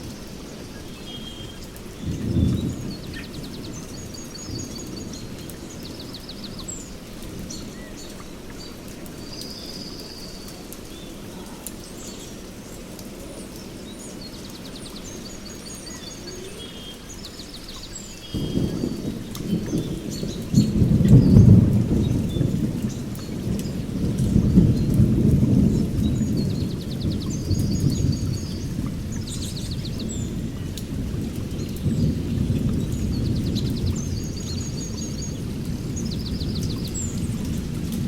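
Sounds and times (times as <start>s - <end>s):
rain hissing: 0.0s - 38.0s
songbirds chirping and trilling: 0.0s - 38.0s
thunder rumble: 1.8s - 7.6s, 18.3s - 38.0s.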